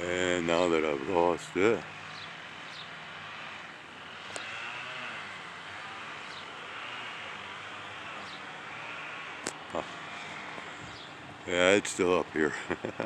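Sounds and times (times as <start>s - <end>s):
distant propeller plane droning: 0.0s - 13.0s
bird chirps: 2.0s - 3.0s.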